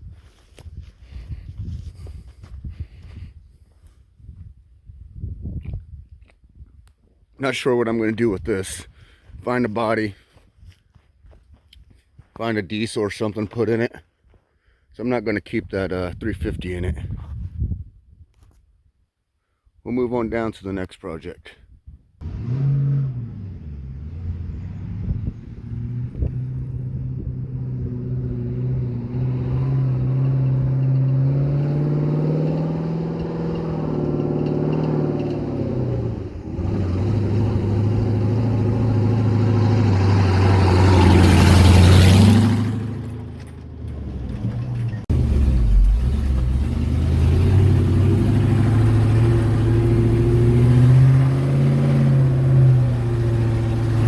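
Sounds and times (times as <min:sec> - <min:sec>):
vehicle engine driving: 0:22.2 - 0:54.0.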